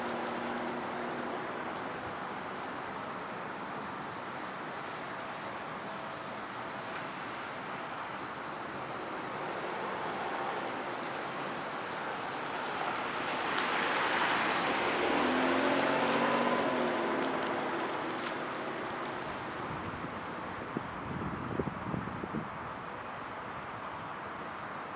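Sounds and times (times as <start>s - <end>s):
tyre and wind noise: 18.3s - 22.9s.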